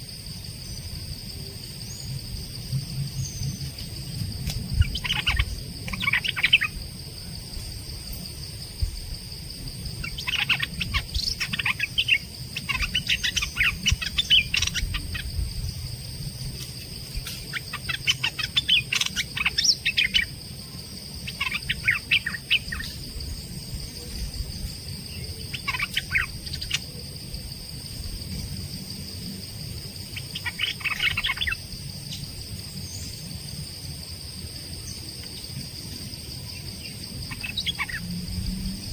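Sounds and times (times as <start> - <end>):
songbird rapid chirps: 1.7 - 7.3, 9.9 - 15.7, 16.4 - 27.1, 29.8 - 33.4, 34.8 - 38.9.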